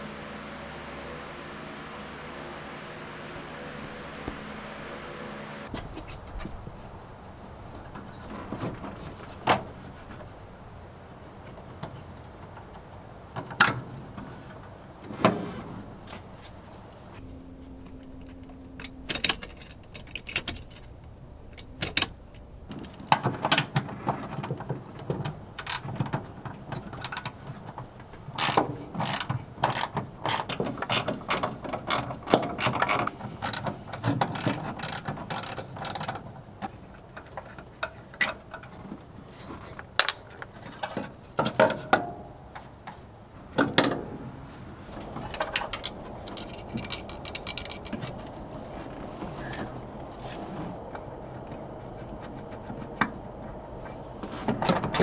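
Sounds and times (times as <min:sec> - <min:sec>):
metallic clanks and knocks: 0:17.2 - 0:27.8, 0:40.0 - 0:42.7
rapid ratchet clicking: 0:28.4 - 0:32.0, 0:34.4 - 0:36.1.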